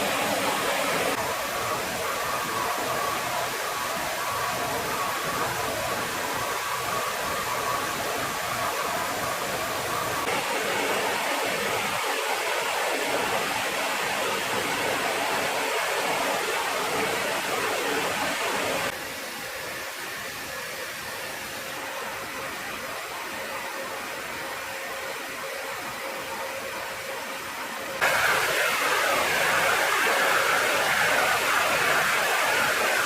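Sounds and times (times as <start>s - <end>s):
jet engines running: 0.0s - 19.0s, 28.0s - 33.0s.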